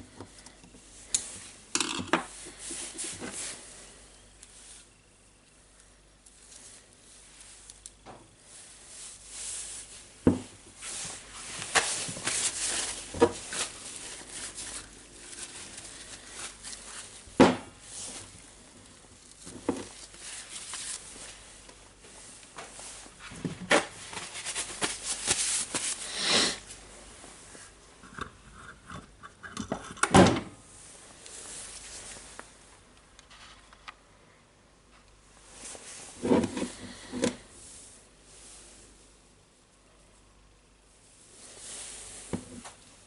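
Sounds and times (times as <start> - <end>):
scraping or brushing: 2.3 - 3.8, 41.3 - 42.6.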